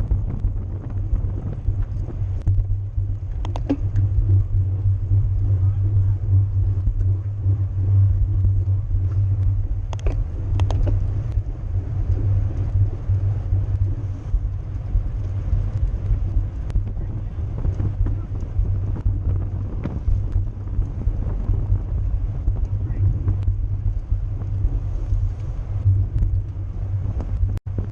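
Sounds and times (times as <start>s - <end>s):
road rumble: 0.0s - 27.9s
wind buffeting: 0.0s - 27.9s
sharp clicks: 3.3s - 4.4s, 9.9s - 11.4s.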